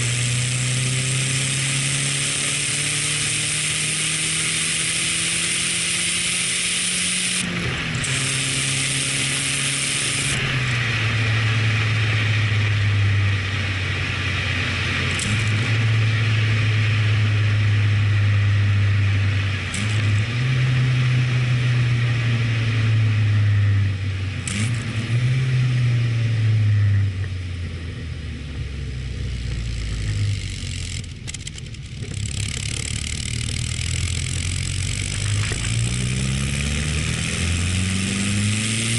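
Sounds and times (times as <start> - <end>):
turbocharged car engine revving: 0.0 - 38.9.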